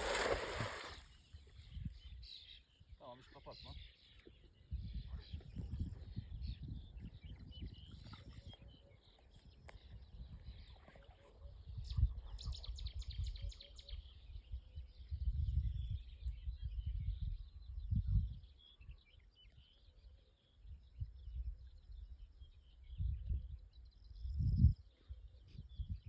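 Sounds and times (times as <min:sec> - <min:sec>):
wind buffeting microphone: 0:04.7 - 0:08.8, 0:14.5 - 0:18.5.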